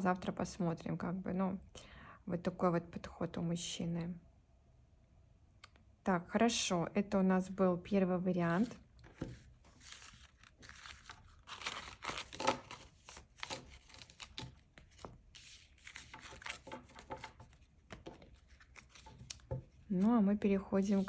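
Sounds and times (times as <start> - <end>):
cards being shuffled: 8.5 - 20.2.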